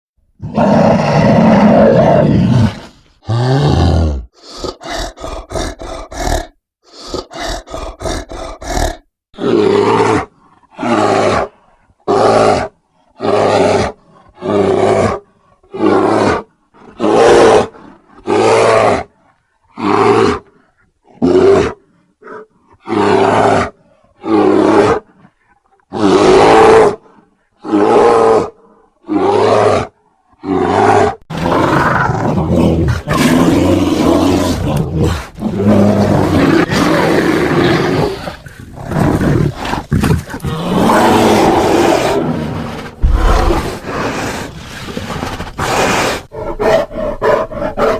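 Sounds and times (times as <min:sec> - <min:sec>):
bear grunting: 0:00.4 - 0:18.3, 0:30.4 - 0:47.9
bear growling: 0:00.4 - 0:47.9
bear roaring: 0:00.4 - 0:47.9.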